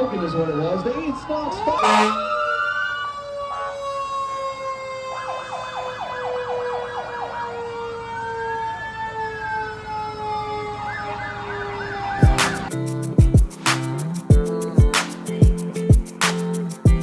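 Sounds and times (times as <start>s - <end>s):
electronic siren yelp and wail: 0.0s - 12.7s
steady siren tone: 0.0s - 12.7s.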